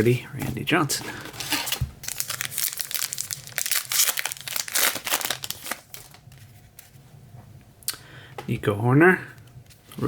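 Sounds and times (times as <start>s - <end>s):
wrapper crinkling and tearing: 1.4s - 6.4s.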